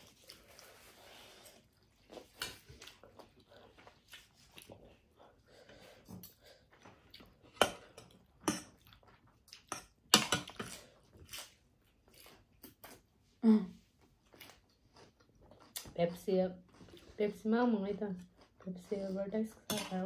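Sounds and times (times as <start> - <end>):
chewing and biting food: 14.2 - 16.0.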